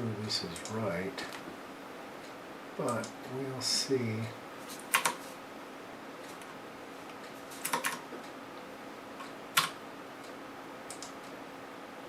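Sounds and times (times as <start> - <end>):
faint steady hum: 0.0 - 12.0
sharp light clicks: 2.2 - 3.2, 9.2 - 11.4.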